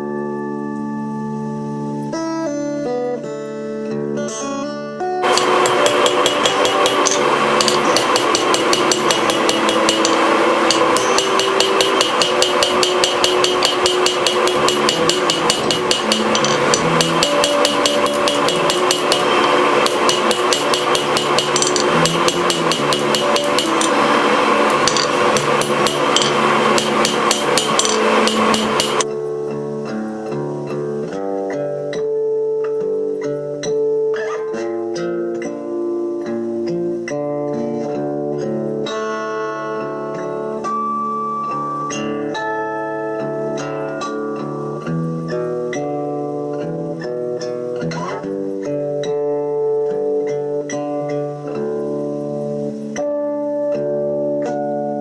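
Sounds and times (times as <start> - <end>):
guitar music: 0.0 - 55.0
hammer striking steel on anvil: 5.2 - 29.0.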